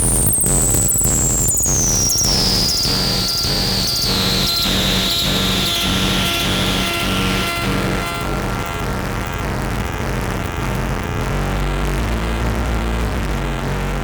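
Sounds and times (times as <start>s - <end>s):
high whistling synth tone: 0.0s - 9.5s
synthesizer music: 3.2s - 9.2s.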